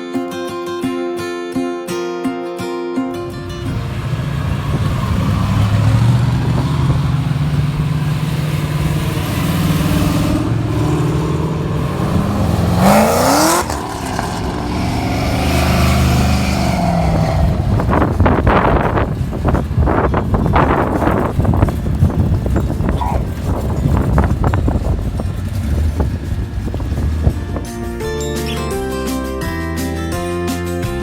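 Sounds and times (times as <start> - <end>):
engine revving up: 3.2 - 19.7
car engines rumbling: 3.2 - 29.5.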